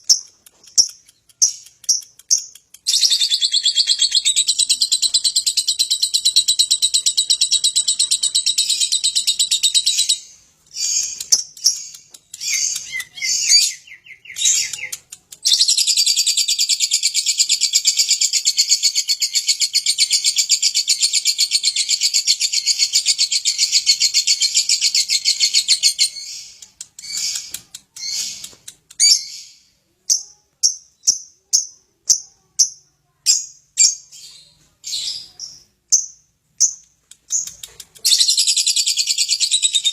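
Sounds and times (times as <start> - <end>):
lovebird chattering trill: 0.0 - 29.4.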